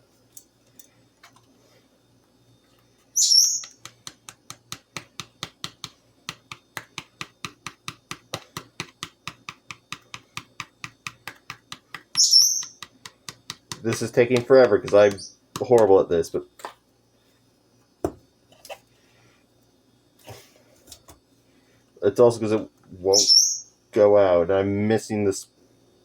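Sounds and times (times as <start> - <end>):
bird chirp: 3.2 - 3.8, 12.1 - 12.8, 23.1 - 23.7.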